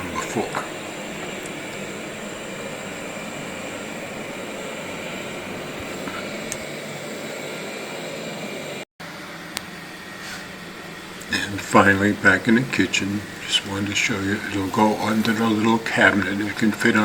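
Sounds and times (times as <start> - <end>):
robot vacuum whirring: 0.0 - 8.7.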